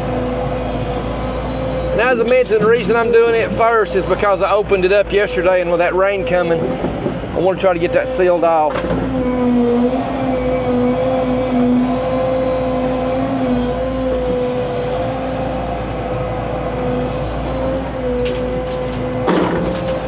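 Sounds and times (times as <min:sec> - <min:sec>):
diesel engine running with whine: 0:00.0 - 0:20.0
short clanks: 0:17.8 - 0:20.0.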